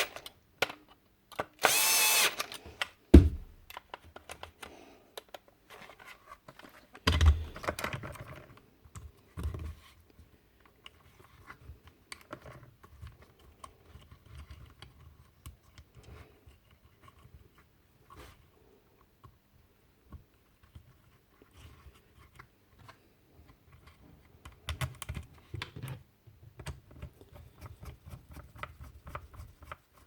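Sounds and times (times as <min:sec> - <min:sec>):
heavier knock: 0:03.2 - 0:03.6.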